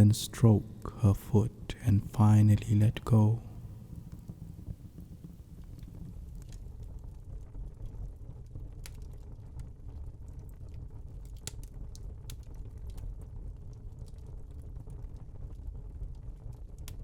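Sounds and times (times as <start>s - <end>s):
steady low rumble: 0.0s - 7.6s
crackles and clicks: 0.0s - 17.0s.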